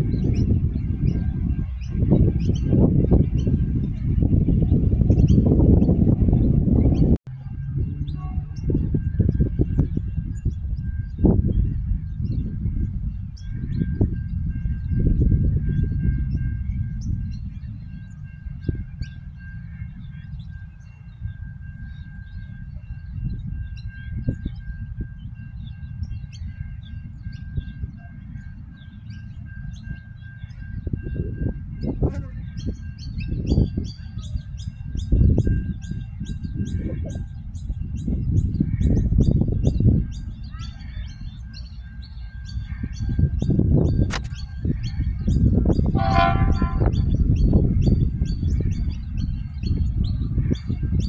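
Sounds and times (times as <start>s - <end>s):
birds chirping: 7.8s - 51.0s
low rumble: 43.1s - 51.0s.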